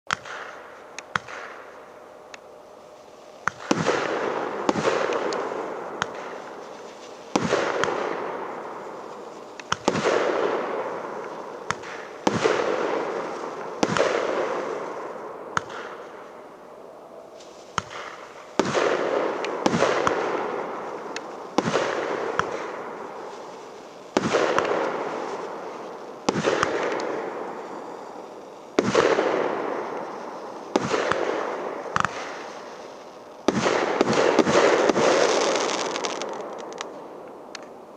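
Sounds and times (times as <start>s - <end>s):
small launch pops: 0.1s - 1.7s, 3.4s - 8.1s, 9.6s - 10.2s, 11.2s - 12.6s, 15.6s - 16.1s, 17.7s - 20.2s, 30.7s - 32.6s
fireworks bangs: 0.1s - 16.7s, 17.3s - 37.9s
crackle and hiss of stars: 0.1s - 37.9s.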